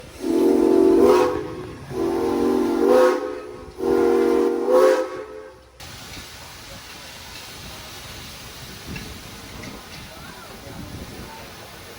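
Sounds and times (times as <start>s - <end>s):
steam locomotive whistle blasts: 0.2s - 5.6s.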